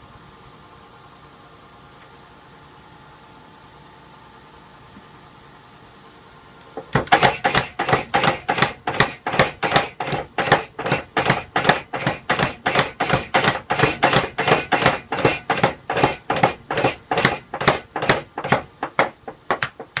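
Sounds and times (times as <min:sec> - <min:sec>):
hammer striking metal: 0:06.8 - 0:20.0.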